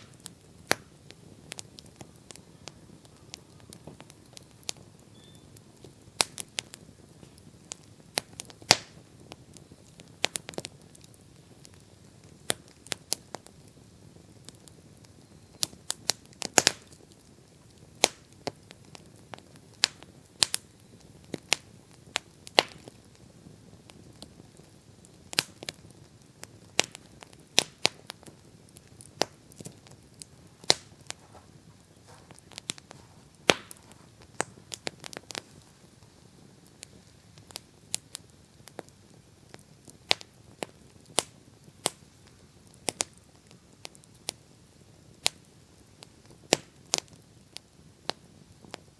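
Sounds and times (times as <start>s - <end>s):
campfire crackling: 0.0s - 48.9s
faint steady hiss: 0.0s - 48.9s.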